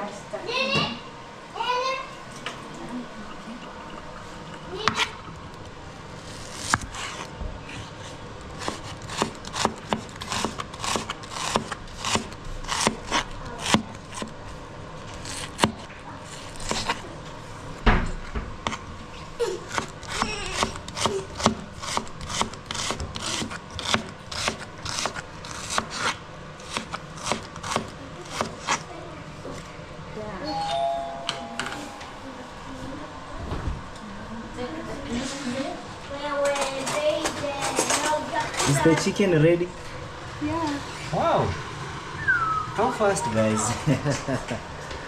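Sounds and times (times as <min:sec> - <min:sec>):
knife chopping on cutting board: 0:08.6 - 0:14.3, 0:15.2 - 0:15.9, 0:19.7 - 0:28.8.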